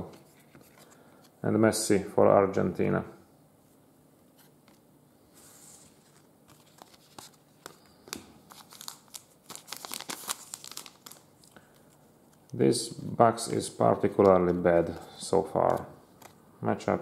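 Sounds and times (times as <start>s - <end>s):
foil wrapper tearing and crinkling: 8.5s - 11.5s.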